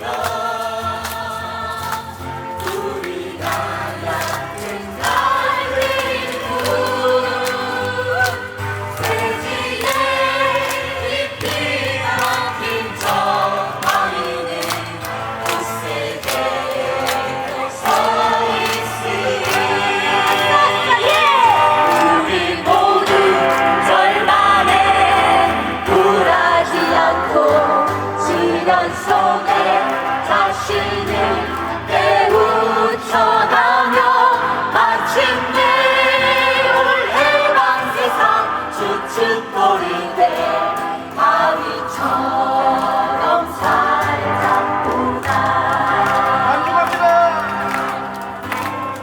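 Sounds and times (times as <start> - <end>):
group singing in chorus: 0.0 - 49.0
guitar: 0.0 - 49.0
keyboard: 0.0 - 49.0.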